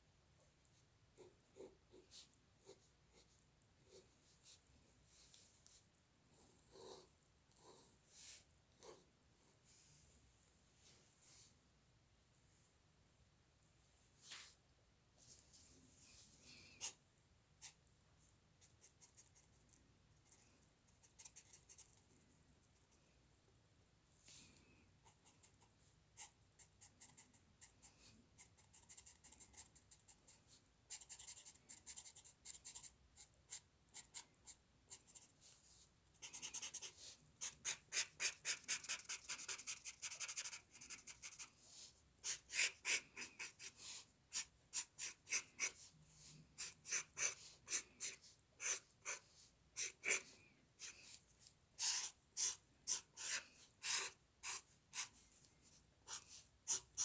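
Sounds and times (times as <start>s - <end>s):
drawing tool scratching paper: 36.2s - 41.6s, 42.2s - 51.2s, 51.8s - 55.2s.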